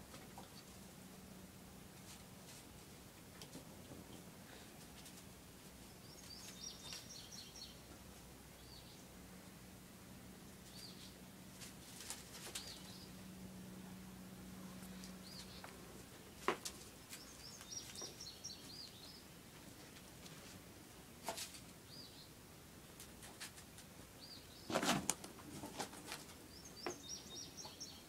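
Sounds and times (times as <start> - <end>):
birds twittering: 5.8 - 7.9, 12.4 - 13.2, 14.8 - 15.8, 17.0 - 19.3, 21.8 - 22.4, 24.2 - 24.8, 26.4 - 28.0
small bird chirps: 6.0 - 7.8, 26.5 - 28.0.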